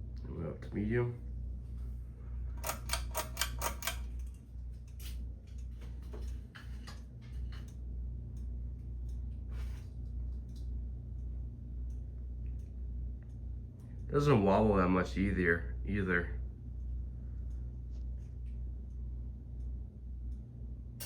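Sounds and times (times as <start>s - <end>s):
ceiling fan motor humming: 0.0s - 21.0s
pull-chain switch clicks: 2.6s - 4.4s.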